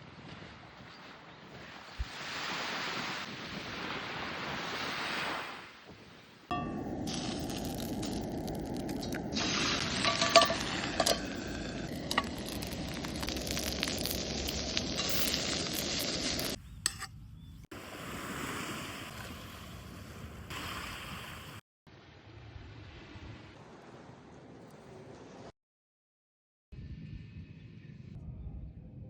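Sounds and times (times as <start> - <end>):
food sizzling in a pan: 6.5 - 16.6
metal utensil clinks: 9.9 - 12.6.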